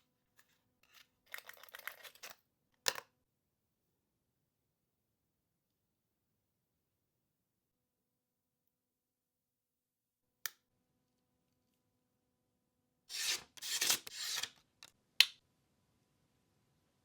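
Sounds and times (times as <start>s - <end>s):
hands rubbing and scraping: 13.1s - 14.6s.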